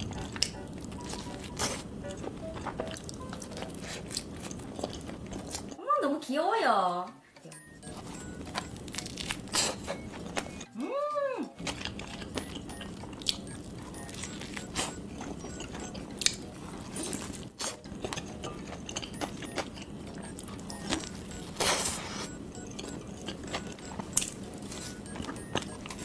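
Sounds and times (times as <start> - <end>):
crunchy chewing: 0.0 - 5.8, 11.6 - 26.0.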